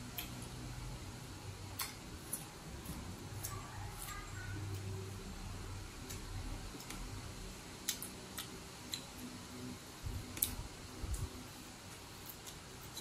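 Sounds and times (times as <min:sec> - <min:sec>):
person chewing and lip-smacking: 0:07.8 - 0:09.3.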